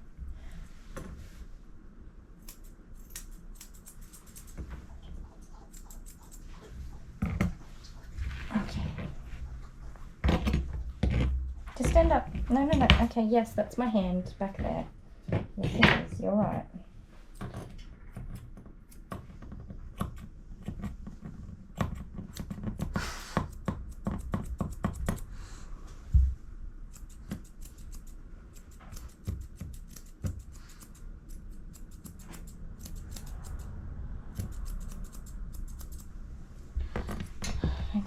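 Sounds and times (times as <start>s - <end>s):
scissors snipping: 2.4s - 4.6s, 5.4s - 6.4s, 26.9s - 33.7s, 34.3s - 36.1s.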